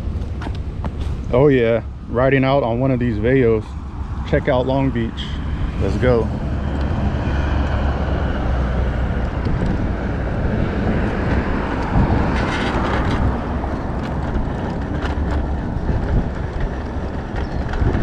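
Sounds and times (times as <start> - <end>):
road and tyre rumble: 0.0 - 18.0
wind buffeting microphone: 0.0 - 18.0
bike rattling over bumps: 4.4 - 18.0.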